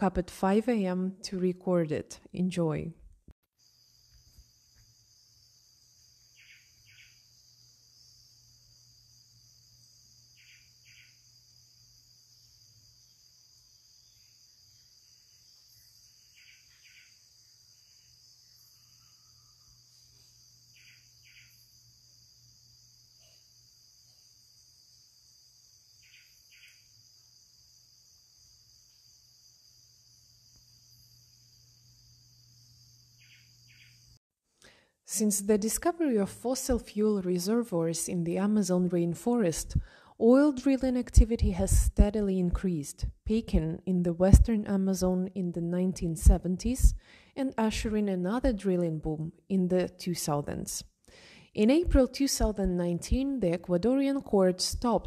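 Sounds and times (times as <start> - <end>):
insect drone: 3.5 - 35.0
soft bird calls: 6.3 - 7.2, 20.7 - 21.6.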